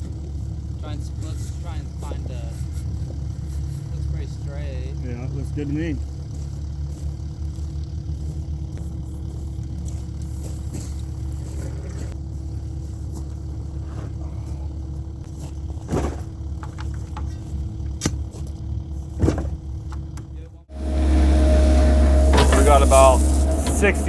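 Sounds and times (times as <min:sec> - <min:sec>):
excavator diesel engine running: 0:00.0 - 0:17.9, 0:18.6 - 0:24.0
mid-pitched drone: 0:20.7 - 0:24.0.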